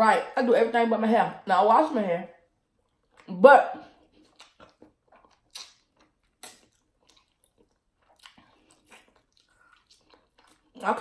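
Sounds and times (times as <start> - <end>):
mouth clicks and smacks: 4.1 - 10.8.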